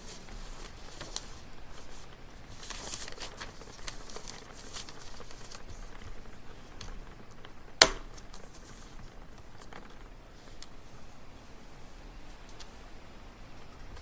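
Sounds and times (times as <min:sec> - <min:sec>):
soft rustling: 0:00.0 - 0:14.0.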